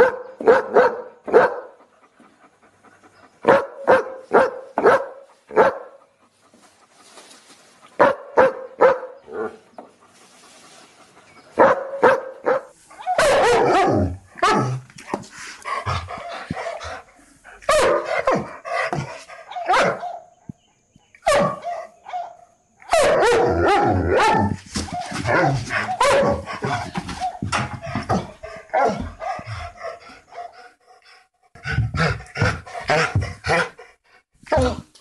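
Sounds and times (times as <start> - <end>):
dog barking sharply: 0.0 - 1.7, 3.5 - 5.9, 8.0 - 9.1, 11.6 - 14.7, 17.7 - 18.4, 19.6 - 20.2, 21.3 - 22.3
deeper dog barks: 0.0 - 1.8, 3.4 - 6.0, 8.0 - 9.6, 11.6 - 15.2, 17.6 - 20.3, 21.2 - 30.6.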